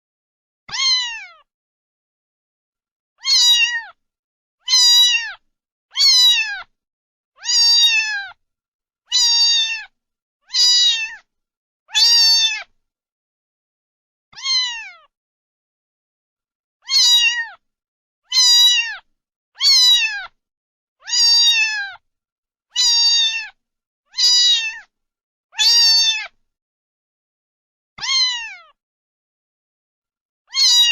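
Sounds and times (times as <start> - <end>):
cat meowing: 0.7 - 1.5, 3.2 - 4.0, 4.6 - 6.7, 7.4 - 8.4, 9.1 - 11.3, 11.9 - 12.7, 14.4 - 15.1, 16.8 - 17.6, 18.3 - 20.4, 21.0 - 22.0, 22.7 - 24.9, 25.6 - 26.4, 28.0 - 28.8, 30.5 - 30.9.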